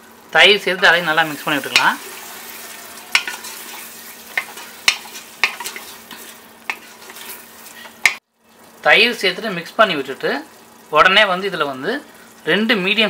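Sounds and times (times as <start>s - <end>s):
spices sizzling in oil: 0.0s - 13.0s
spoon clinking against pot: 3.1s - 7.4s.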